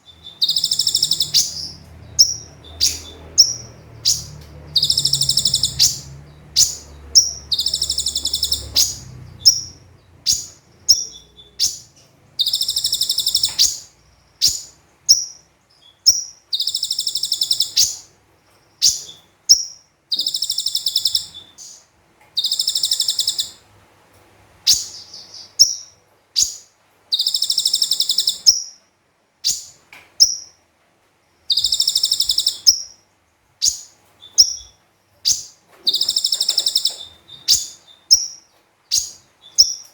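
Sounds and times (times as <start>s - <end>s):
bird high-pitched trills: 0.0s - 15.4s, 16.1s - 18.1s, 18.8s - 21.8s, 22.4s - 23.6s, 27.2s - 28.8s, 31.5s - 33.0s, 33.6s - 39.9s
bird sharp chips: 0.3s - 11.8s, 35.3s - 38.3s.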